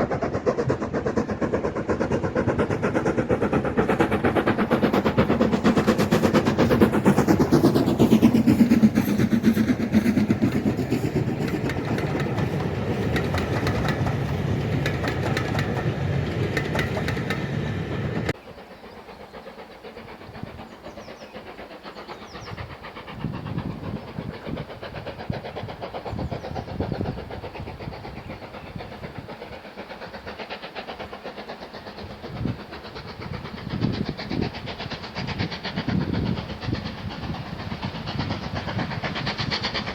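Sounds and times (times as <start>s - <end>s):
train rushing past: 0.0s - 39.9s
uneven railway sounds: 0.0s - 39.9s.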